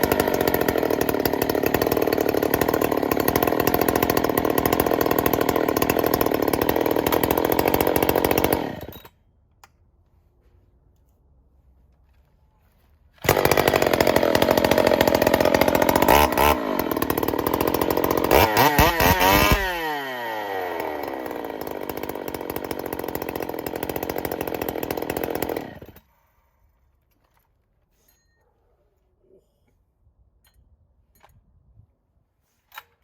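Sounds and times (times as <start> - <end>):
chainsaw revving and idling: 0.0 - 9.1, 13.2 - 26.1.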